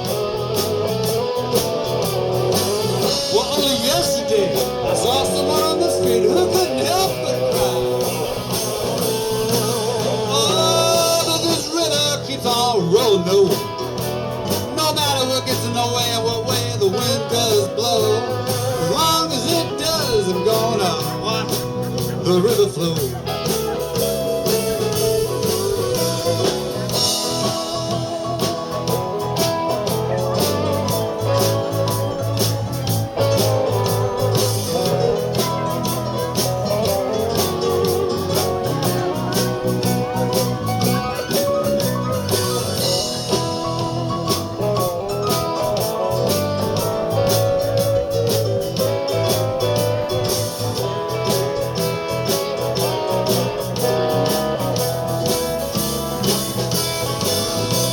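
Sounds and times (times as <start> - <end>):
blues band playing: 0.0 - 57.9
lead guitar: 0.0 - 57.9
steady drum beat: 0.0 - 57.9.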